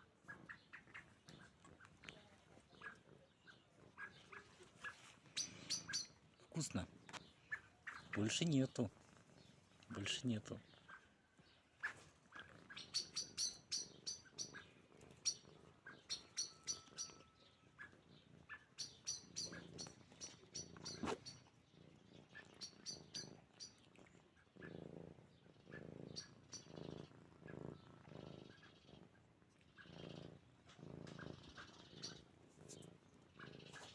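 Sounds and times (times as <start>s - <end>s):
cat purring: 8.1s - 10.8s, 13.9s - 33.9s.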